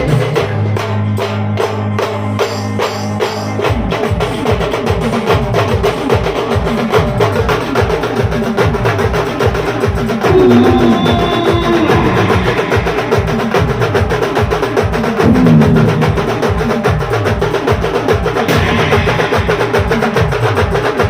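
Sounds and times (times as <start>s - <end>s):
fast dense drumming: 8.9s - 21.0s
steady held note: 10.2s - 14.1s, 15.2s - 17.0s.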